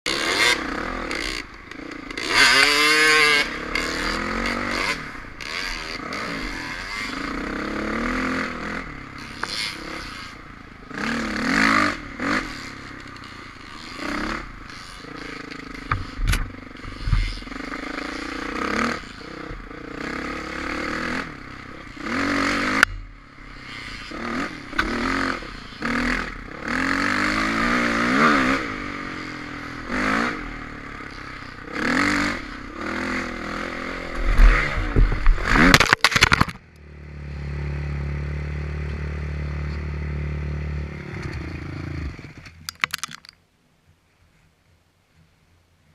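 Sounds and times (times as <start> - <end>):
dirt bike engine revving: 0.1 - 36.3.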